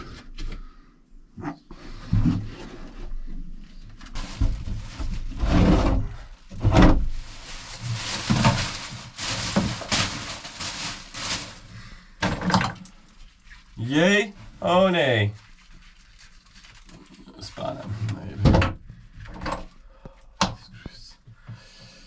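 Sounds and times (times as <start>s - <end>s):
objects rustling and scraping: 1.4s - 13.8s, 15.4s - 19.9s.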